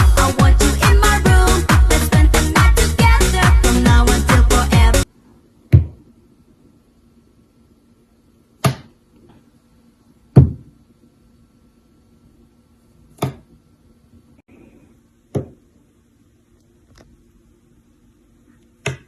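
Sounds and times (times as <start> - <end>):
faint steady hum: 0.0 - 19.0
sharp knocks: 5.7 - 6.0, 10.4 - 10.7.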